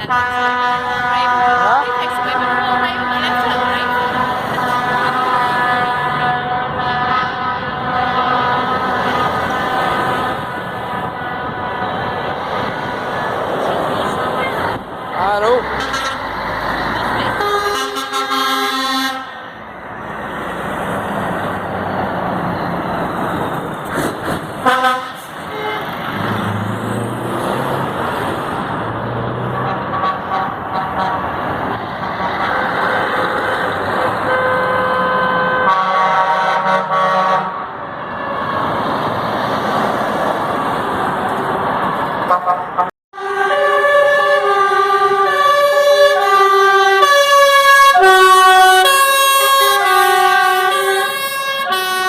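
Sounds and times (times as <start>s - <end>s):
truck air horn blasts: 0.0s - 12.1s, 15.7s - 16.4s, 17.2s - 19.6s, 24.6s - 26.0s, 29.4s - 31.4s, 32.0s - 38.3s, 42.3s - 52.0s
trucks running on road: 0.0s - 52.0s.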